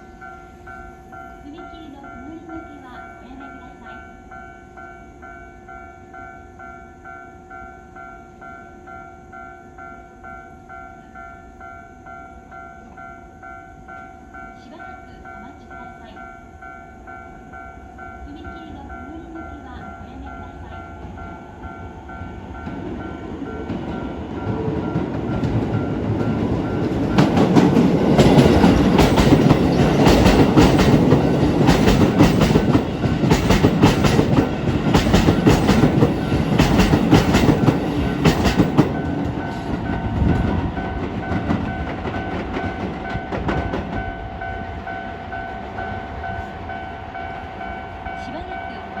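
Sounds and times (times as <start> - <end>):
electric train passing: 0.0 - 49.0
level crossing warning bell: 0.0 - 49.0
wheel clacks over rail joints: 23.6 - 44.2.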